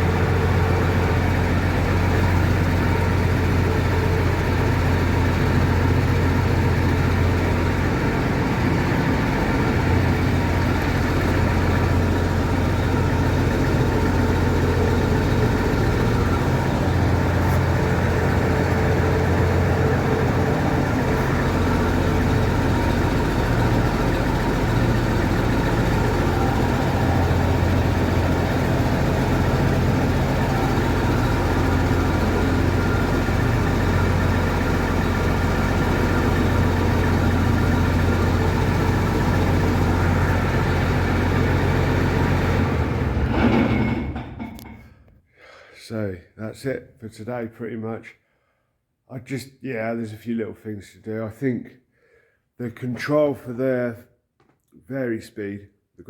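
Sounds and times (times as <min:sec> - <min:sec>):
combine harvester engine running: 0:00.0 - 0:44.8.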